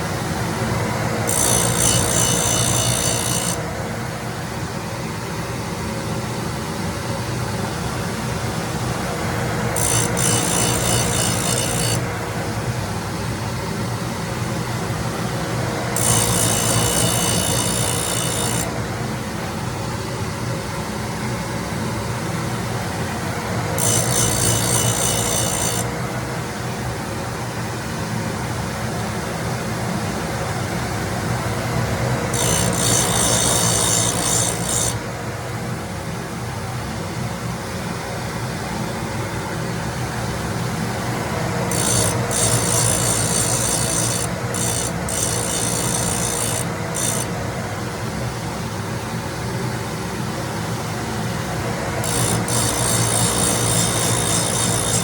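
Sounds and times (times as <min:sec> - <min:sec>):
grinding wheel hissing on steel: 0:00.0 - 0:03.6, 0:09.5 - 0:12.1, 0:15.1 - 0:18.8, 0:23.8 - 0:26.0, 0:32.2 - 0:35.1, 0:41.0 - 0:47.4, 0:51.5 - 0:55.0
grinder humming: 0:00.0 - 0:03.8, 0:08.9 - 0:12.5, 0:14.8 - 0:19.2, 0:23.4 - 0:26.2, 0:31.3 - 0:35.2, 0:40.8 - 0:47.8, 0:51.2 - 0:55.0.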